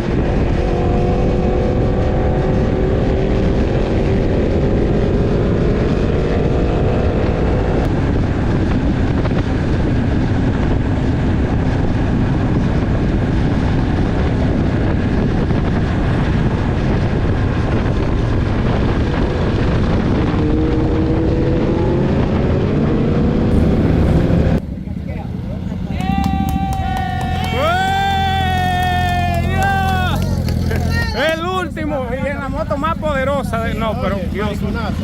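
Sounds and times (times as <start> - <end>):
wind noise: 0.0 - 25.0, 25.6 - 35.0
motorcycle engine accelerating: 0.0 - 35.0.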